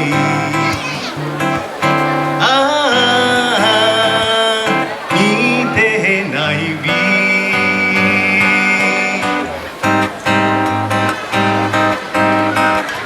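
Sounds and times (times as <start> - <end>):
melody with long held notes: 0.0 - 13.0
strummed acoustic guitar: 0.0 - 13.0.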